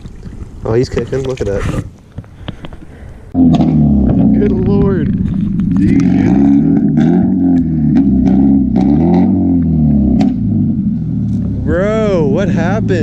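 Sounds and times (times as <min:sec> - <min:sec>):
engine revving up and down: 0:03.4 - 0:13.0.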